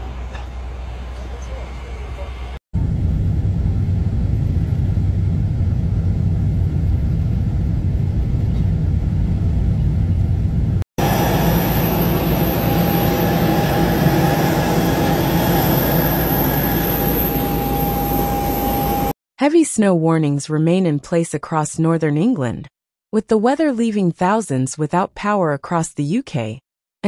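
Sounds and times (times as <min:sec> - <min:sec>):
high engine whine: 0:00.0 - 0:19.2
jet engines running: 0:00.0 - 0:19.2.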